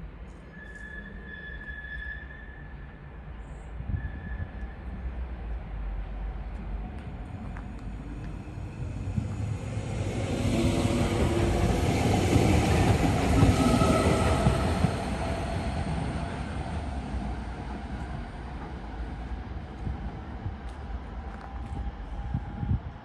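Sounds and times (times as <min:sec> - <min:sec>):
electric train passing: 0:05.2 - 0:22.8.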